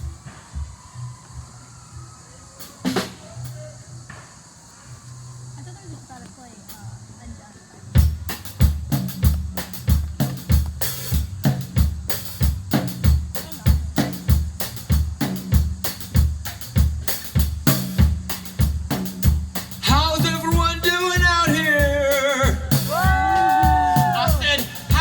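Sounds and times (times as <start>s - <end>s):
drum kit dance beat: 8.0s - 25.0s.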